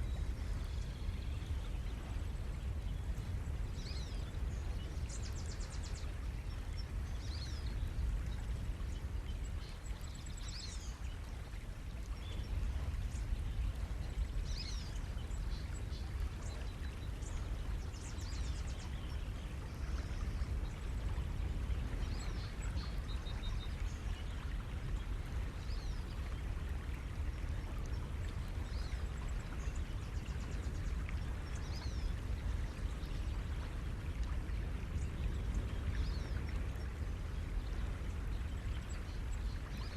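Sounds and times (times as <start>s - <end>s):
small birds chirping and trilling: 0.0s - 11.4s, 12.2s - 26.2s.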